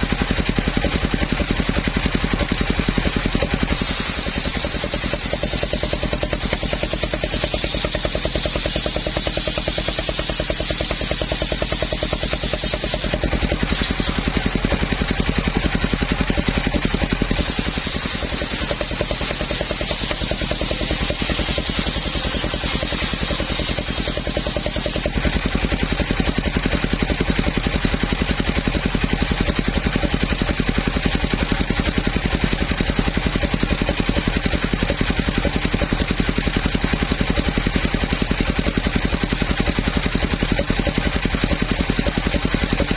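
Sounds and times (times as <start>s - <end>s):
saw cutting through trunk: 0.0s - 42.9s
sawmill engine running: 0.0s - 42.9s.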